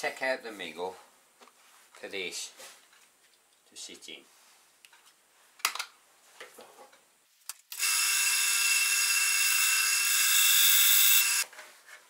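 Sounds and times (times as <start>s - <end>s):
lathe tool cutting wood: 7.8s - 11.4s.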